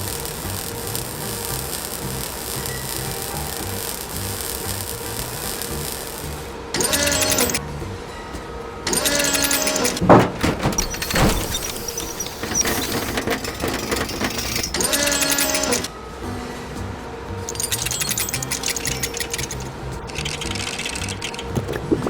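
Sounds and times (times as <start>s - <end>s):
cartoon mechanical clattering: 6.8s - 7.6s, 8.9s - 15.9s, 17.5s - 22.0s
sharp knocks: 9.2s - 14.2s.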